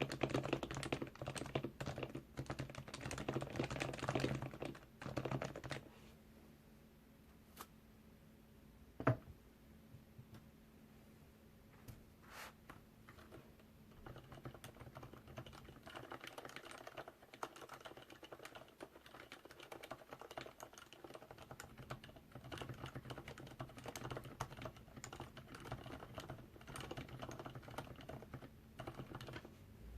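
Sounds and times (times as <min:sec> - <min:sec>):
soft fast keyboard typing: 0:00.0 - 0:06.0, 0:13.0 - 0:29.6.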